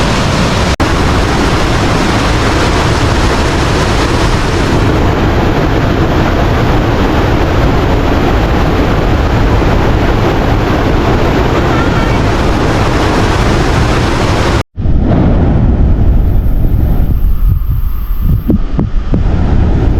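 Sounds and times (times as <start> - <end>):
waterfall roaring: 0.0 - 14.6.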